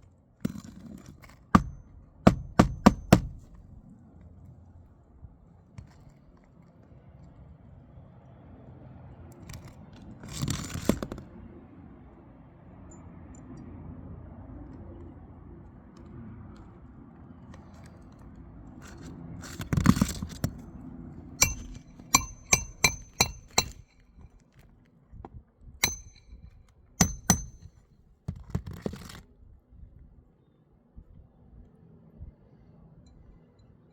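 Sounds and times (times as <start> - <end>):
hand tool striking metal: 1.6 - 3.6, 21.4 - 24.0, 25.8 - 27.7.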